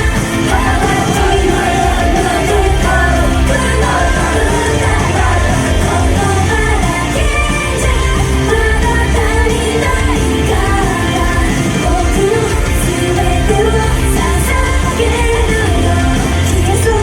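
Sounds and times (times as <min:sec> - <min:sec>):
pop song with vocalist and band: 0:00.0 - 0:17.0.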